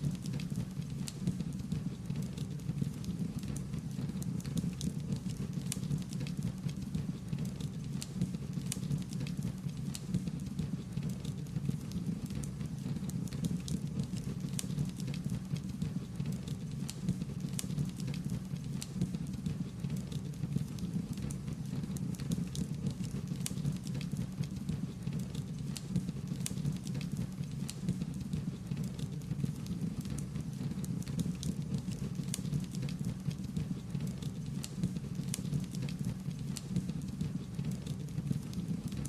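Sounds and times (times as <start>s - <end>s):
wood fire crackling: 20.0s - 28.2s, 28.8s - 39.0s.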